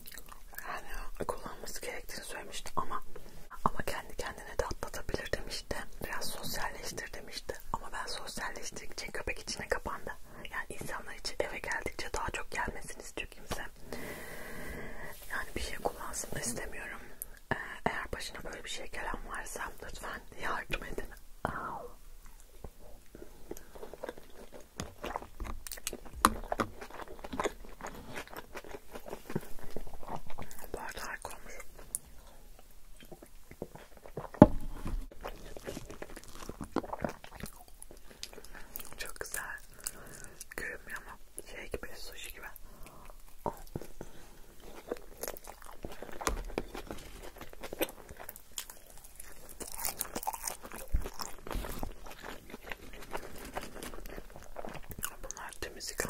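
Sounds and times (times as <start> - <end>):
chewing mouth clicks: 0.0 - 0.6, 35.2 - 40.6
chewing and crunching: 0.0 - 1.5, 22.2 - 41.5, 42.4 - 56.0.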